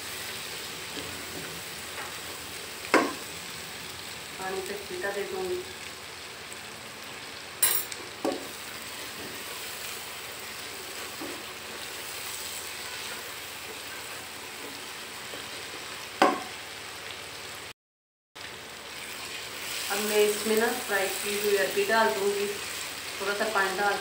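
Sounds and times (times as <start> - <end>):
food sizzling in a pot: 0.0 - 17.7, 18.4 - 24.0
spatula stirring: 12.6 - 14.7.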